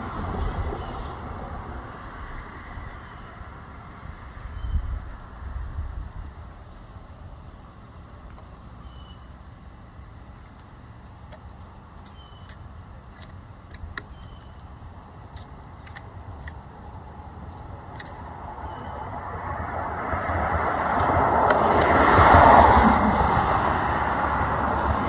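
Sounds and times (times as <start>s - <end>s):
woodpecker pecking at wood: 10.5s - 18.9s, 20.8s - 22.6s
steady low rumble: 12.6s - 25.0s.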